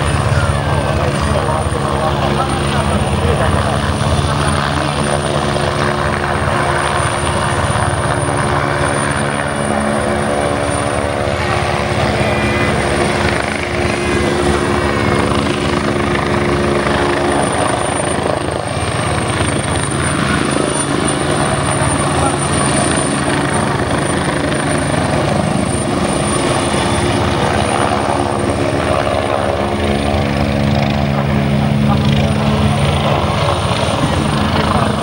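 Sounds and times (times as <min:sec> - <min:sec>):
helicopter engine hum: 0:00.0 - 0:35.0
helicopter rotor chopping: 0:00.0 - 0:35.0
high whine: 0:06.0 - 0:18.5.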